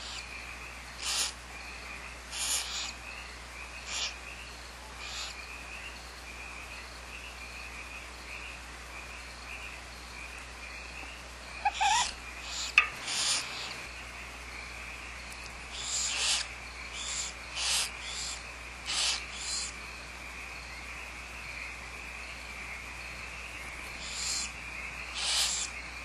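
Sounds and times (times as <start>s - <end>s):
owls hissing: 1.0s - 1.4s, 2.3s - 3.0s, 3.9s - 4.2s, 5.0s - 5.4s, 11.6s - 13.9s, 15.7s - 19.7s, 24.0s - 24.5s, 25.1s - 25.7s.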